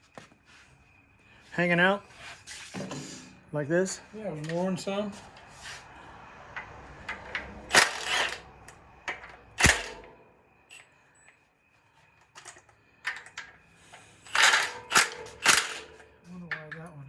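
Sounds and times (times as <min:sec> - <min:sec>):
metal tools clanking: 0:06.5 - 0:10.8, 0:12.3 - 0:17.0.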